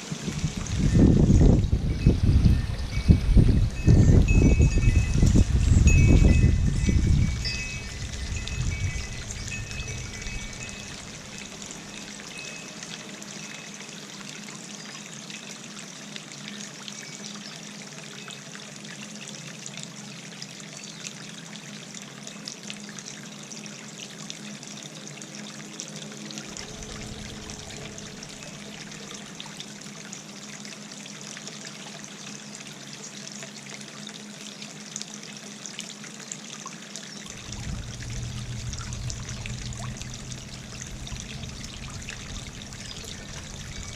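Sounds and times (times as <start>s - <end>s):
wind rumble on microphone: 0.0s - 12.8s, 26.3s - 29.6s, 37.3s - 43.9s
fountain trickling and splashing: 0.0s - 43.9s.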